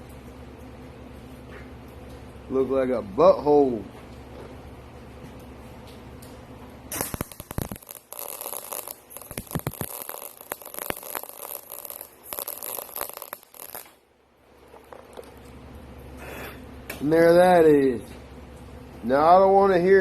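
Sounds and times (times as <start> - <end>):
welding arc crackling: 6.9 - 15.8.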